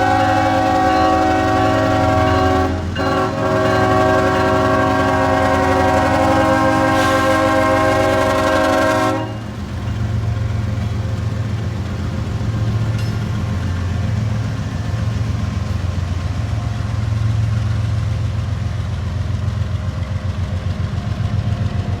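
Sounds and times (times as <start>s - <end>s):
locomotive air horn chord: 0.0s - 9.6s
diesel engine rumbling: 0.0s - 22.0s.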